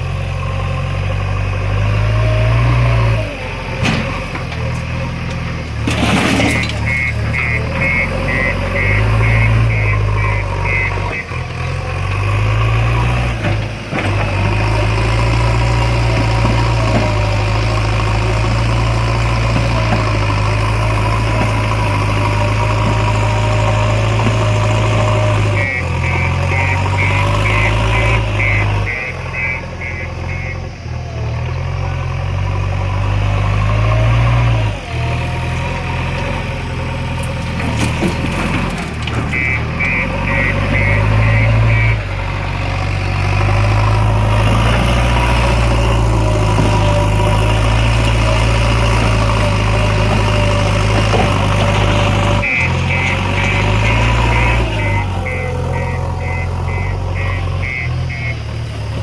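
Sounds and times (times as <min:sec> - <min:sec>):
heavy diesel machinery running: 0:00.0 - 0:59.0
reversing alarm beeping: 0:06.4 - 0:11.6, 0:15.1 - 0:31.2, 0:39.2 - 0:42.2, 0:51.5 - 0:58.7.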